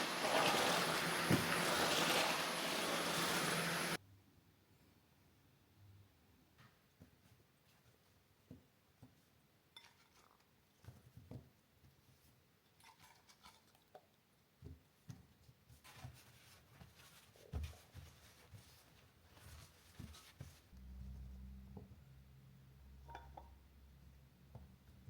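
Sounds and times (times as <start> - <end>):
air fryer fan humming: 0.0 - 4.0.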